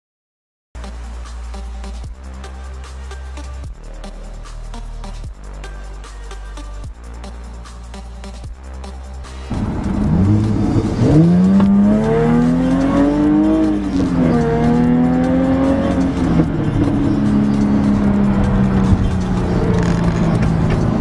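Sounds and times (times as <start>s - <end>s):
car engine accelerating hard: 9.5s - 21.0s.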